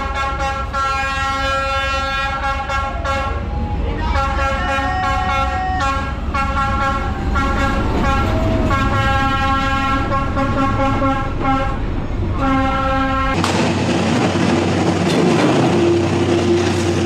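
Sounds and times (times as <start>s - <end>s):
train horn blasts: 0.0s - 13.4s
low rumble of passing train: 0.0s - 17.0s
rushing clattering noise: 13.2s - 17.0s.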